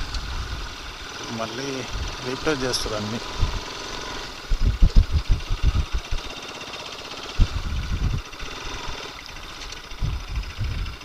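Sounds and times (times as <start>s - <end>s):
motorcycle engine running: 0.0s - 11.0s
wind buffeting microphone: 1.9s - 3.7s, 4.3s - 6.4s, 7.4s - 11.0s.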